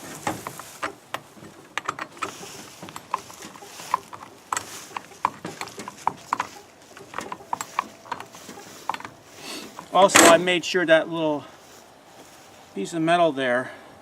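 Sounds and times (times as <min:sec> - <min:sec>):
light metal clicks: 0:00.2 - 0:10.4.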